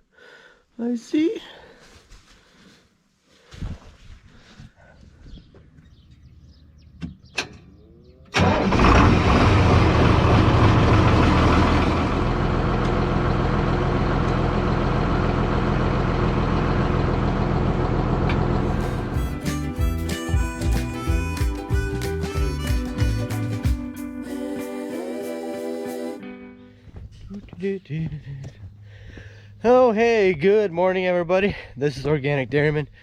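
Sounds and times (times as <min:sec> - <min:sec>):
tractor engine starting and idling: 0:07.3 - 0:19.7.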